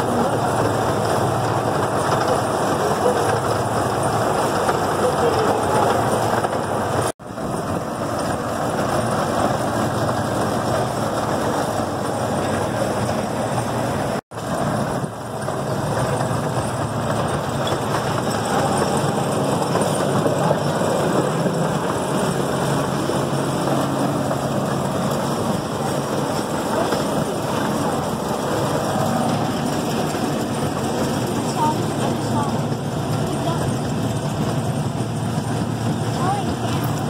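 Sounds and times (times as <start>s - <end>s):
low engine hum: 0.0s - 37.0s
rolling and wind noise: 0.0s - 37.0s.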